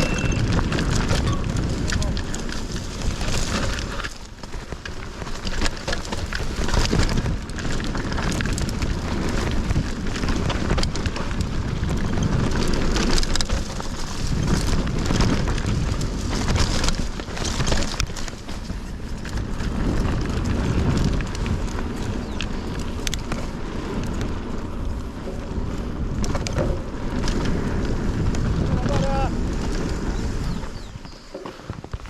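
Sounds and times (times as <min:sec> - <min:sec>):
bike rattling: 0:00.0 - 0:32.0
tyres crackling over loose ground: 0:00.0 - 0:32.0
wind rumble on microphone: 0:00.0 - 0:32.0.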